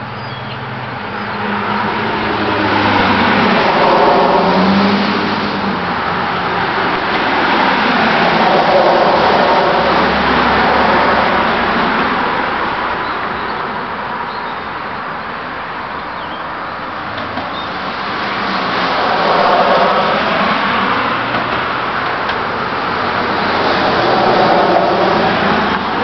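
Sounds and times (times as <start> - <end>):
pickup truck driving past: 1.4 - 12.9, 17.7 - 26.0.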